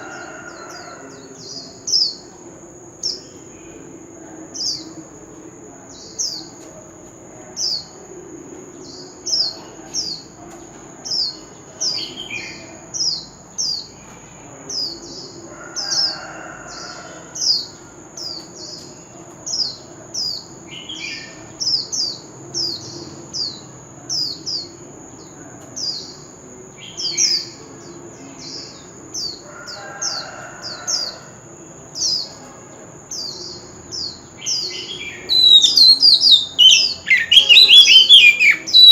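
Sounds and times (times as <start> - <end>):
bird singing whistled notes: 34.8 - 38.9.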